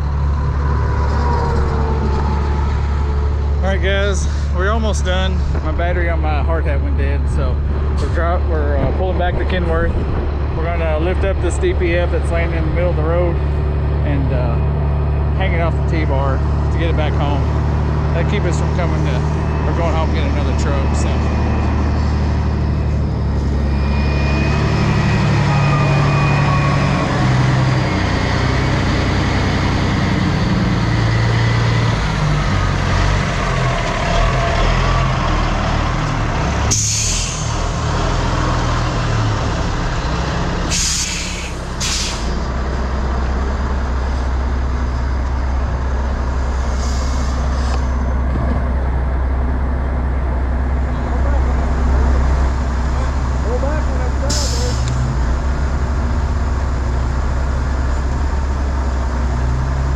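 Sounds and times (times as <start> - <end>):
truck diesel engine: 0.0 - 59.9
air brakes hissing: 36.7 - 37.7, 40.6 - 42.5, 46.6 - 48.0, 54.3 - 55.0.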